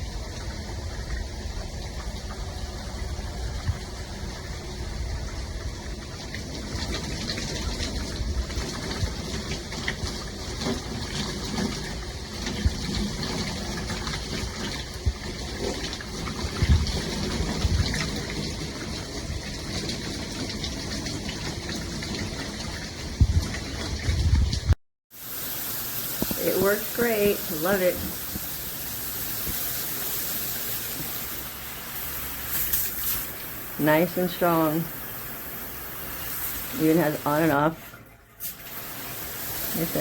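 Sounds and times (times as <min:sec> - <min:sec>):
water spraying from shower head: 0:25.1 - 0:40.0.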